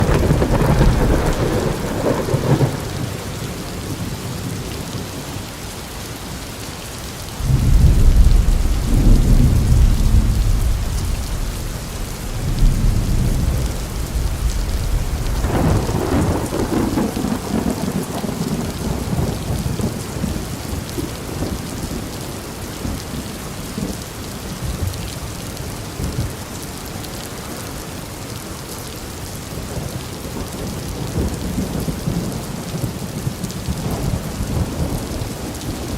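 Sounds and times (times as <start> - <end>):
rolling thunder: 0.0 - 4.5, 7.4 - 20.5
steady rain: 0.0 - 35.9.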